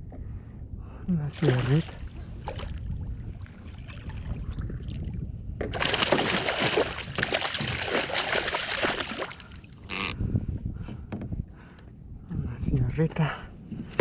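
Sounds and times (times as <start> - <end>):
low wind rumble: 0.0 - 14.0
water splashing around kayak: 1.3 - 10.1.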